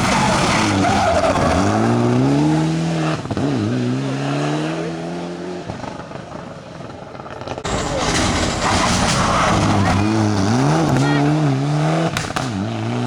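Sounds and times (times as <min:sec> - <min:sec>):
rally car engine accelerating: 0:00.0 - 0:13.0.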